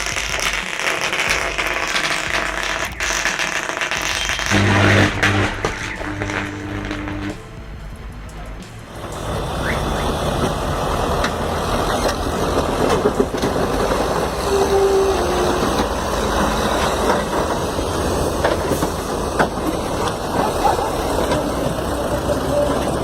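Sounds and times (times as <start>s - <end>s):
heavy machinery rumbling: 0.0s - 23.0s
clanks and rattles: 7.1s - 14.4s, 15.5s - 23.0s.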